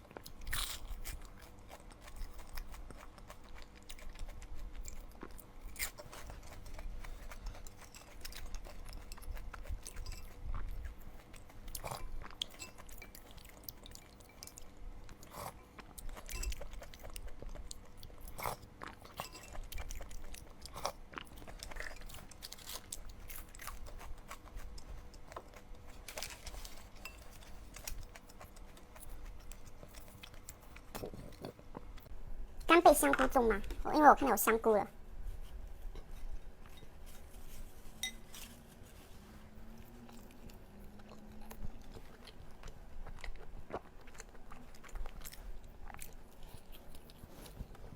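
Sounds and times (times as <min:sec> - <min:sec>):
person chewing food: 0:00.0 - 0:32.2, 0:35.5 - 0:47.9.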